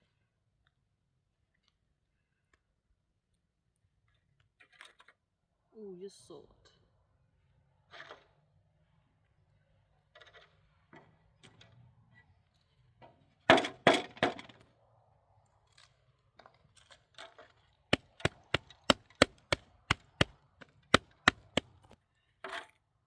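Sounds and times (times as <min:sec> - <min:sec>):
sharp knocks: 0:17.9 - 0:21.9.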